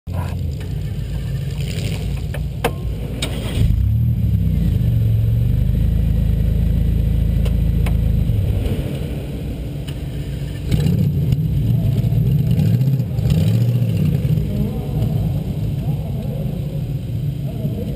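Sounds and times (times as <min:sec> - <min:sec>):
car engine revving: 0:00.1 - 0:17.9
sharp knocks and clatters: 0:02.0 - 0:03.3.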